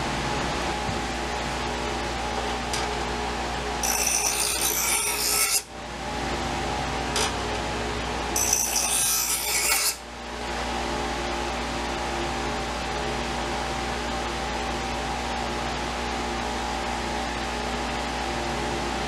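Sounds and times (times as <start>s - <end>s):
steady hum: 0.0s - 19.0s
abrasive rasping on knife blade: 3.8s - 5.7s, 8.4s - 10.0s.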